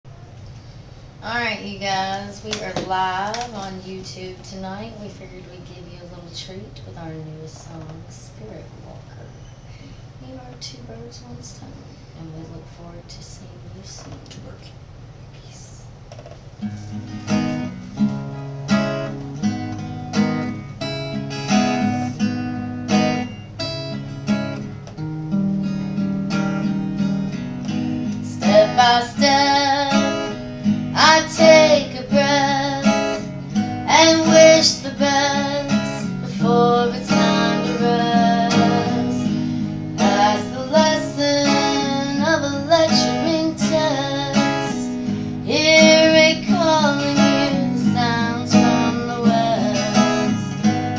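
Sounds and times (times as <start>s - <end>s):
acoustic guitar strumming: 16.2s - 50.9s
person singing: 28.2s - 33.3s, 33.9s - 50.6s.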